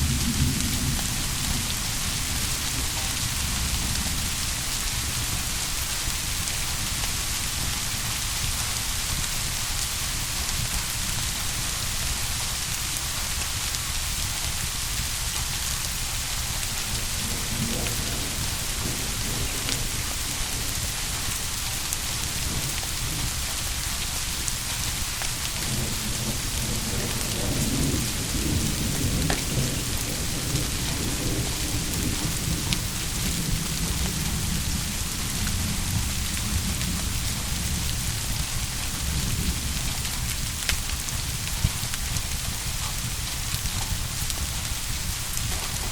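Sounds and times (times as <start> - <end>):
distant thunder rumbling: 0.0 - 5.4, 16.7 - 23.8, 25.6 - 38.0
heavy rain: 0.0 - 45.9.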